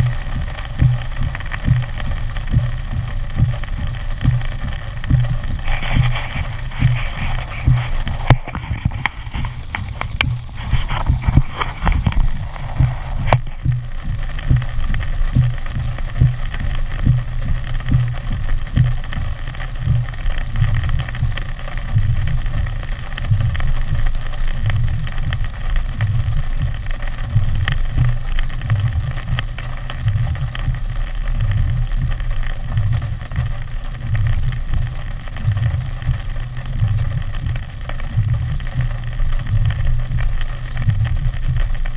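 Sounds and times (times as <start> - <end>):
wind buffeting microphone: 0.0 - 18.9
steady hiss: 0.0 - 41.9.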